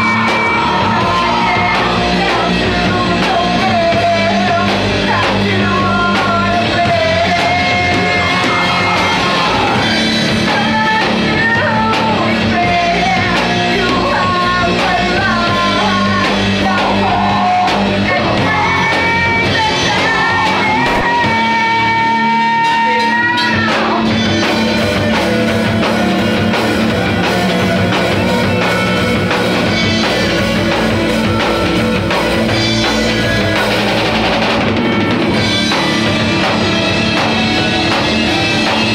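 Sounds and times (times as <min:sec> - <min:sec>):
person singing and shouting: 0:00.0 - 0:24.2
rock band playing: 0:00.0 - 0:38.9.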